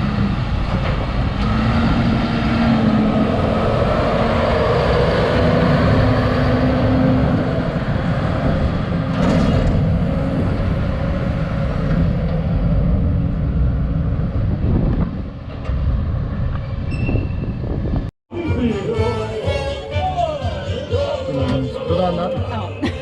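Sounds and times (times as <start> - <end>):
harvester engine running: 0.0 - 16.7.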